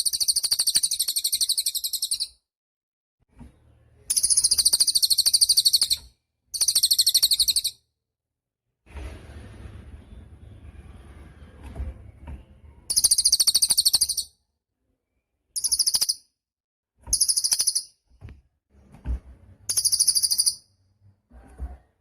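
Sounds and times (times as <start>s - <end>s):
songbird trilled chatter: 12.9s - 14.3s, 15.6s - 16.2s, 17.1s - 17.9s, 19.7s - 20.6s.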